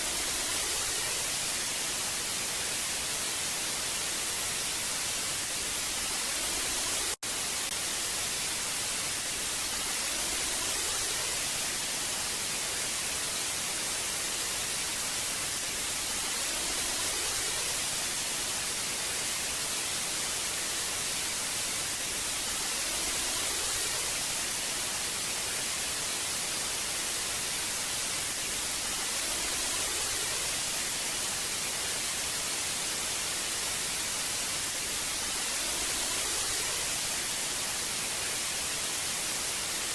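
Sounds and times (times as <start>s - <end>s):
television static hiss: 0.0s - 39.9s.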